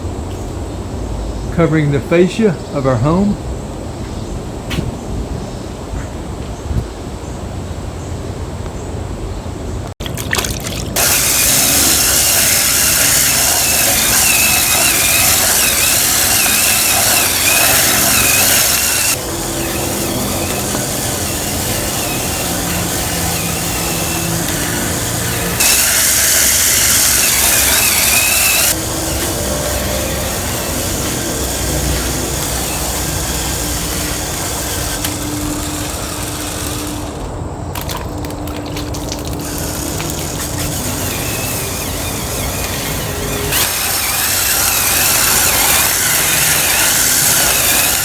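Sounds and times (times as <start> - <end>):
bristles hissing on siding: 11.0 - 37.3, 38.9 - 48.0
spin scrubber motor whining: 11.0 - 37.4, 38.9 - 48.0.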